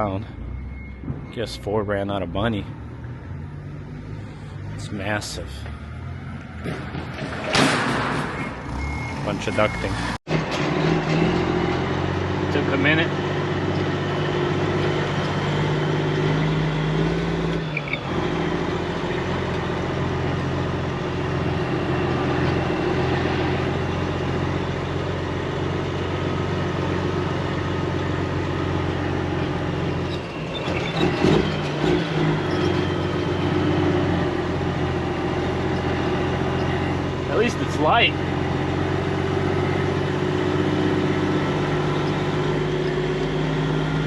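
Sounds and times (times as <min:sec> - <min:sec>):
clunks: 0:00.5 - 0:01.9, 0:05.5 - 0:09.2, 0:29.7 - 0:33.4
truck diesel engine idling: 0:32.8 - 0:44.0.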